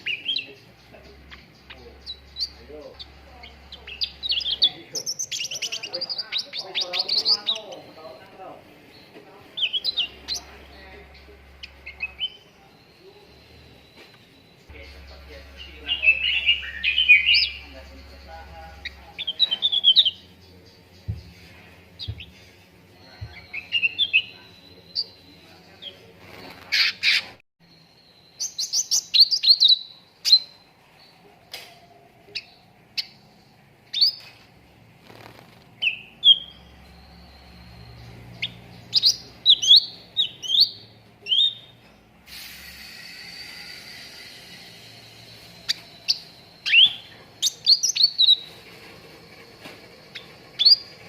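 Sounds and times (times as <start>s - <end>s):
songbird singing: 0.0s - 42.2s, 42.8s - 51.0s.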